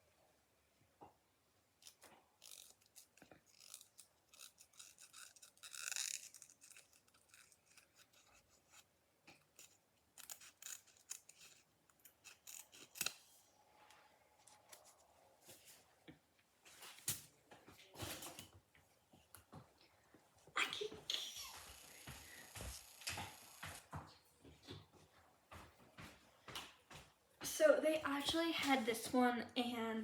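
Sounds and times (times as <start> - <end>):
scissors snipping fabric: 1.8 - 13.3.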